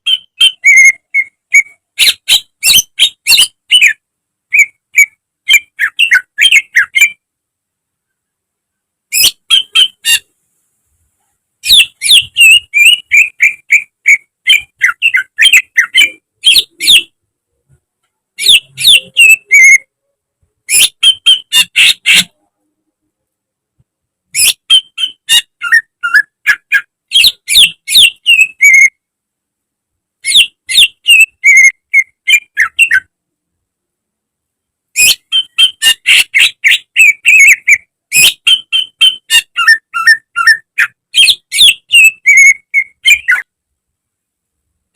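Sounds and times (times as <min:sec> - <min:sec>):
leafbird singing chirps and whistles: 0:00.0 - 0:07.2, 0:09.1 - 0:10.3, 0:11.6 - 0:17.1, 0:18.4 - 0:19.9, 0:20.7 - 0:22.4, 0:24.4 - 0:29.0, 0:30.2 - 0:33.1, 0:35.0 - 0:43.5.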